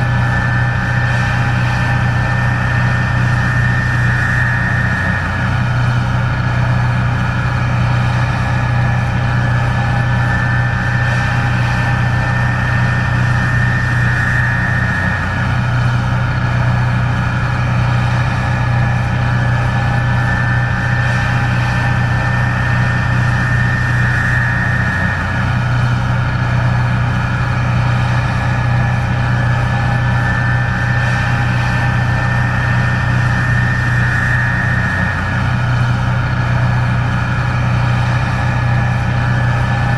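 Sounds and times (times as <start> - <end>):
combine engine drone: 0.0 - 39.9
high whine: 0.0 - 39.9.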